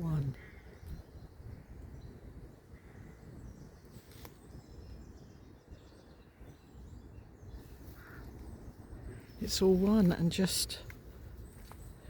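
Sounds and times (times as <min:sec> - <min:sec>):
faint birdsong chirps: 0:00.0 - 0:12.0.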